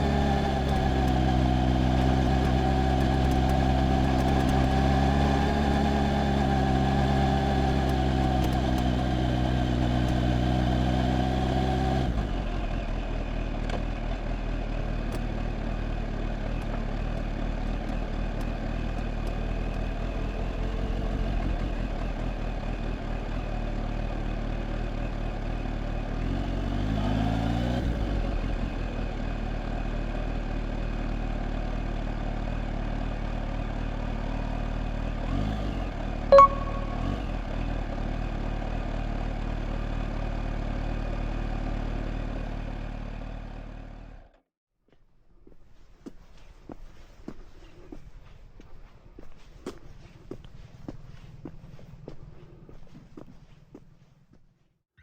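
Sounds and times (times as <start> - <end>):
motorcycle engine revving: 0.0 - 13.3
motorcycle engine running: 0.0 - 27.4.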